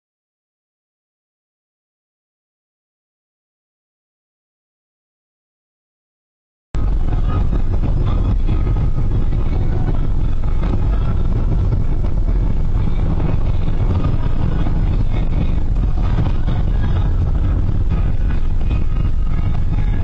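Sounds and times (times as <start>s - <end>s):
loud vehicle rumble: 6.8s - 20.0s.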